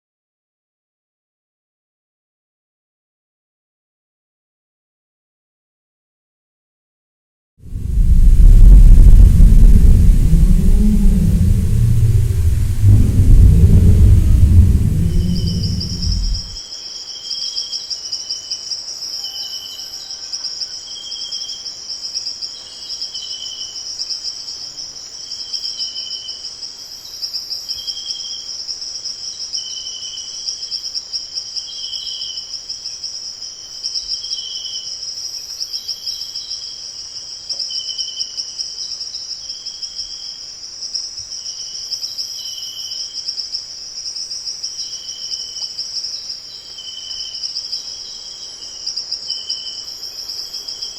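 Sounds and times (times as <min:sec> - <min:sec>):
low-pitched insect chirps: 0:07.7 - 0:16.6
crickets trilling: 0:07.7 - 0:50.9.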